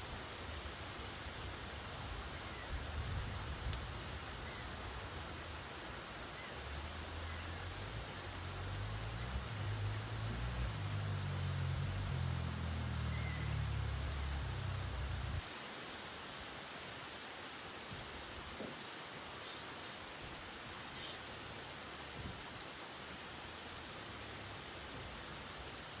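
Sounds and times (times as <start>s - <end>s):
faint raindrop ticks: 0.0s - 0.6s, 1.3s - 26.0s
rain hissing: 0.0s - 26.0s
low rumble: 8.9s - 15.4s.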